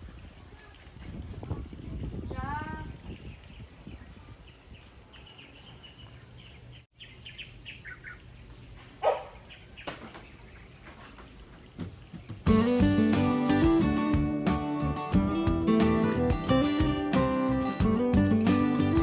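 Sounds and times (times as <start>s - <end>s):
small birds chirping: 0.0s - 12.8s.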